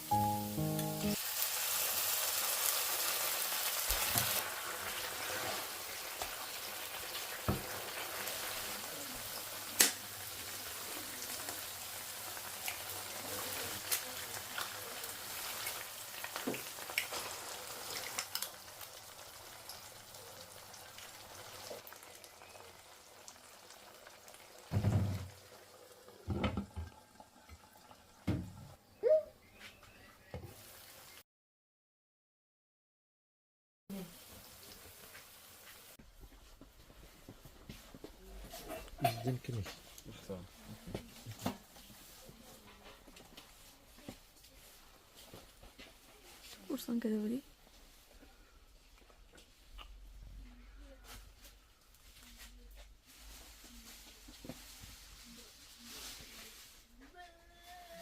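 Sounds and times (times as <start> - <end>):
food sizzling in a pan: 0.0 - 28.6, 30.2 - 31.2, 33.9 - 36.0, 52.9 - 58.0.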